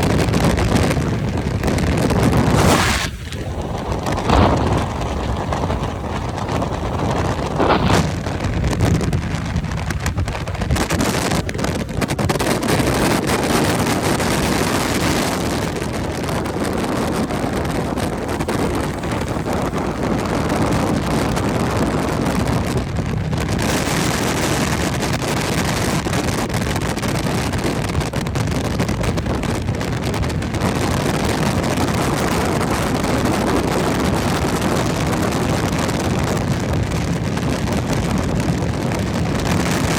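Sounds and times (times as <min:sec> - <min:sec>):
vehicle road and engine noise: 0:00.0 - 0:25.0
wind rushing over microphone: 0:00.0 - 0:39.9.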